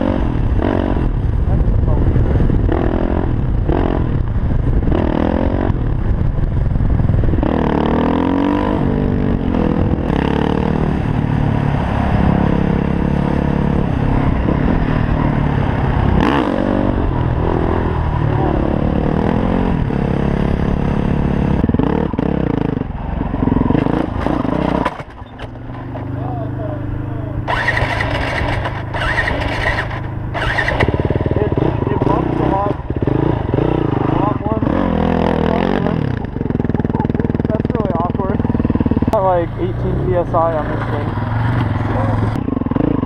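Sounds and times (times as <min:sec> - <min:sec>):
wind rumble on microphone: 0:00.0 - 0:25.4
motorcycle engine revving: 0:00.0 - 0:43.0.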